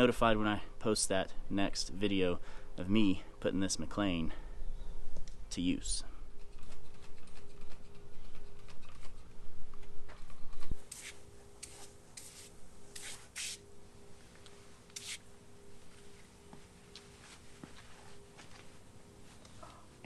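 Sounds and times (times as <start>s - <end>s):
rubbing and handling noise: 6.4s - 19.7s
spray can hisses: 10.9s - 13.6s, 15.0s - 15.2s.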